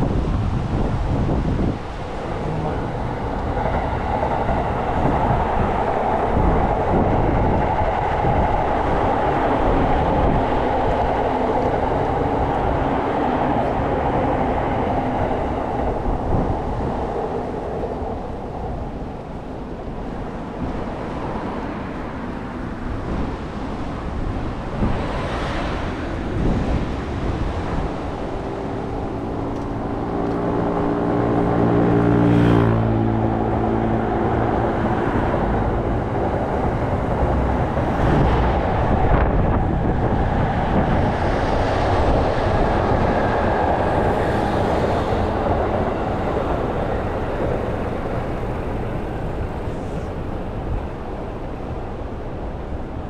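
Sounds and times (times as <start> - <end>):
passing vehicles rumbling: 0.0 - 53.0
wind buffeting microphone: 0.0 - 53.0
low engine hum: 24.0 - 52.9.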